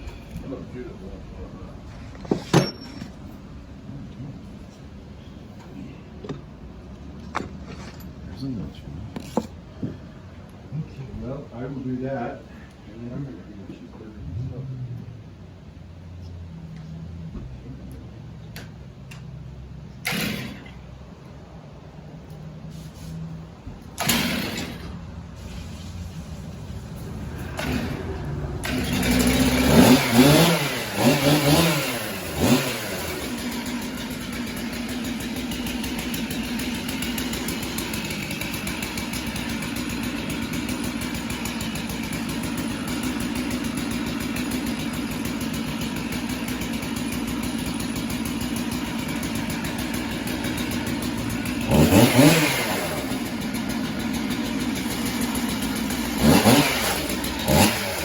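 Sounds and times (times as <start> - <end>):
chainsaw engine revving: 20.0 - 20.8, 23.9 - 25.8, 26.5 - 58.0.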